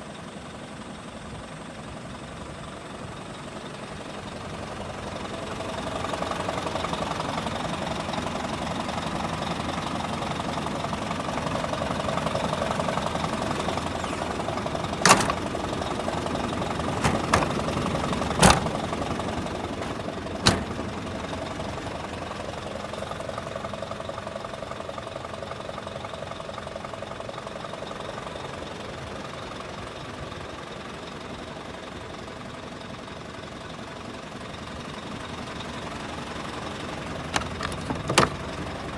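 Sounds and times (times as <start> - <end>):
truck diesel engine idling: 0.8 - 38.9
sharp knocks or clanks: 15.0 - 15.5, 17.0 - 17.7, 18.4 - 18.9, 19.8 - 21.0.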